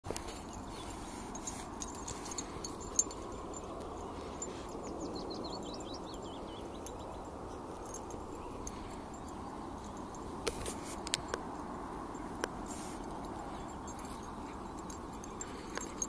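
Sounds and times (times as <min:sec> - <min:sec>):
low background noise: 0:00.1 - 0:16.0.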